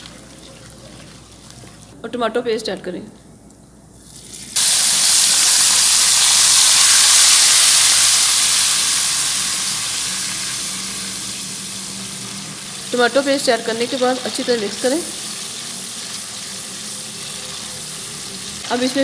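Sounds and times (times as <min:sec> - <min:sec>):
tomato paste sizzling in oil: 0:04.1 - 0:19.0.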